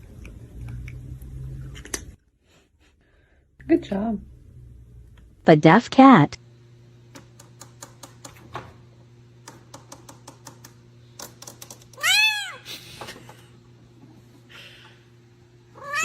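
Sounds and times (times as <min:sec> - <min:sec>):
cat meowing loudly: 0:12.0 - 0:12.6, 0:15.8 - 0:16.0.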